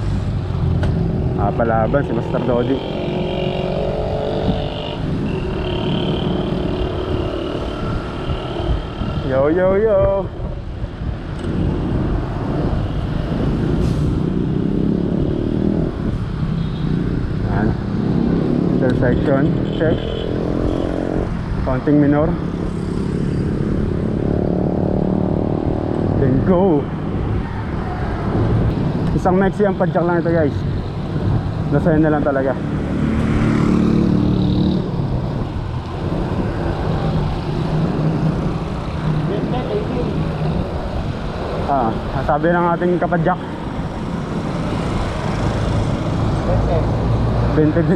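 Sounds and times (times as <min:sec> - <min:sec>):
wind and road noise: 0:00.0 - 0:47.9.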